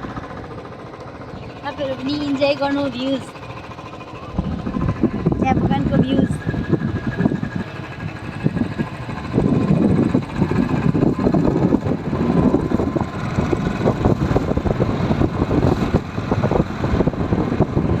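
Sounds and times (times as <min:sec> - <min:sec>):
motorcycle engine rumbling: 0:00.0 - 0:18.0.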